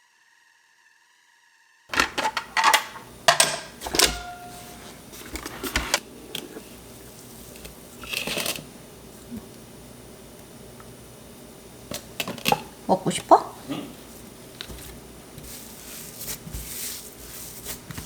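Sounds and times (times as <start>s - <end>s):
utensils clicking on bowl: 1.9s - 6.6s
rustling scrape: 2.1s - 6.6s, 15.4s - 18.0s.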